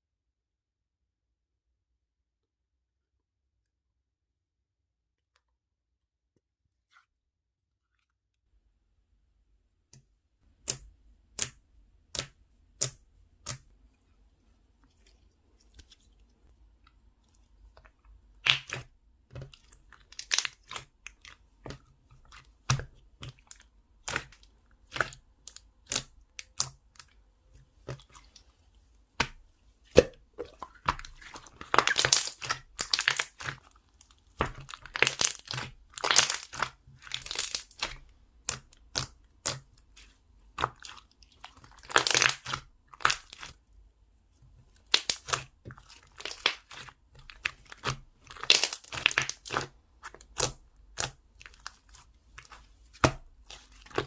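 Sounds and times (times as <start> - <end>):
slime crackling: 18.4 - 27.2, 29.2 - 43.6, 44.8 - 54.0
slime popping: 29.2 - 33.7, 34.3 - 39.7, 40.5 - 43.5, 44.8 - 51.8.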